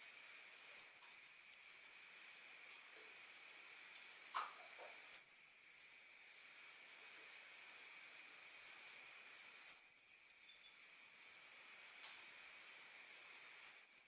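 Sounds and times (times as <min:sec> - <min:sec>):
thrush high whistling call: 0:08.7 - 0:11.6.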